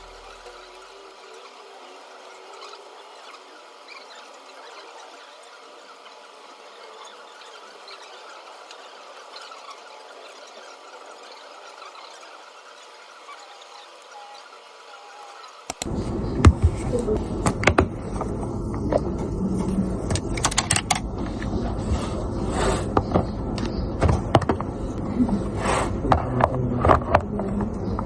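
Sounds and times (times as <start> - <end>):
faint hiss: 0.0 - 17.2
low rumble and murmur: 15.8 - 28.0.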